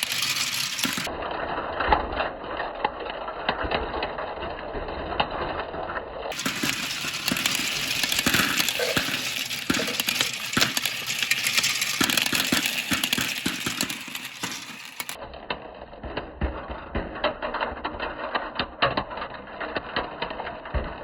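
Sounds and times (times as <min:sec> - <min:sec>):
marbles clicking: 0:00.0 - 0:01.1, 0:06.3 - 0:15.2
marbles rolling down track: 0:00.0 - 0:21.0.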